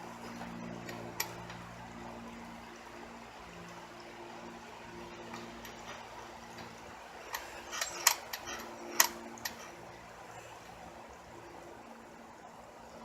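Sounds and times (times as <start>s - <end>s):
steady low hum: 0.0s - 13.0s
small metal parts clicking: 0.8s - 1.6s, 5.3s - 9.8s.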